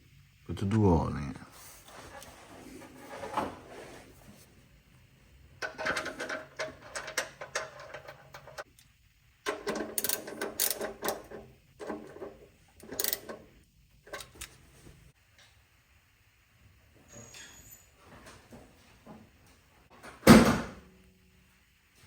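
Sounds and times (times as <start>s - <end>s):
ratchet wrench clicking: 9.5s - 12.2s, 12.8s - 13.4s.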